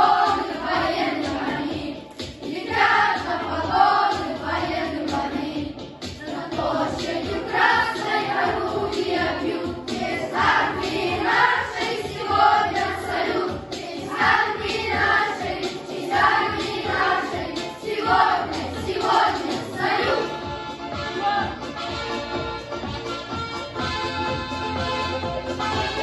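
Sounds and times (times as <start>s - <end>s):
boys singing together: 0.0s - 20.4s.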